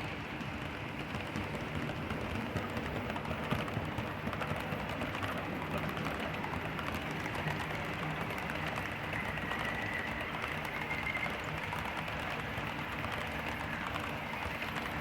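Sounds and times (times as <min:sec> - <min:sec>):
model train wheels rumbling: 0:00.0 - 0:15.0.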